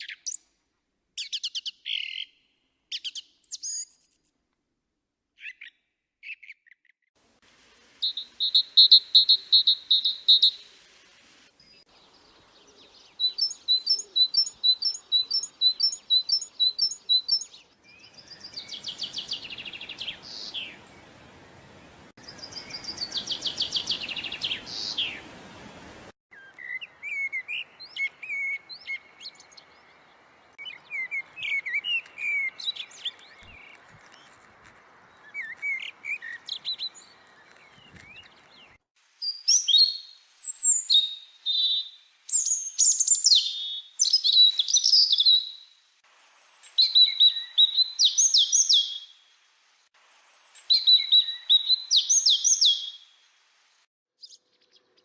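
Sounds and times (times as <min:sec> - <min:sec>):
small birds chirping: 0:00.0 - 0:00.6, 0:01.2 - 0:04.4, 0:08.0 - 0:49.3, 0:50.1 - 0:53.3, 0:54.2 - 0:55.0
steady hiss: 0:07.2 - 0:13.1, 0:18.8 - 0:26.1.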